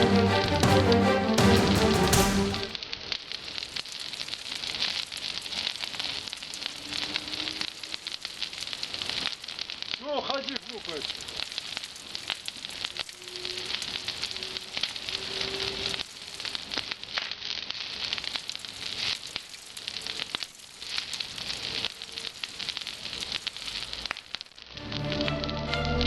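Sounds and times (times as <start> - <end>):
bonfire crackling and popping: 0.0 - 26.0
faint thin whistle: 13.1 - 13.7.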